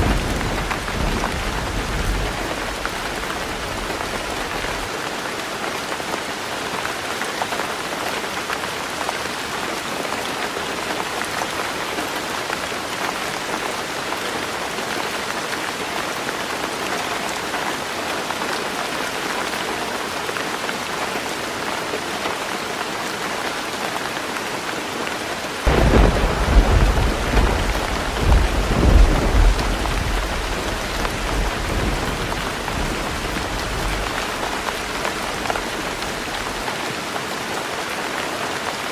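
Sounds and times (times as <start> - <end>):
thunder rumbling: 0.0 - 4.9, 25.7 - 36.6
heavy rain on a roof: 0.0 - 38.9.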